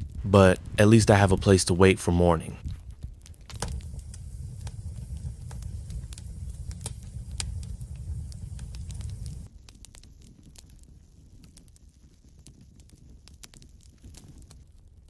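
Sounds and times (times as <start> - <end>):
low steady rumble: 0.0 - 9.5
wood fire crackling: 0.0 - 15.0
sharp pops: 3.0 - 9.5.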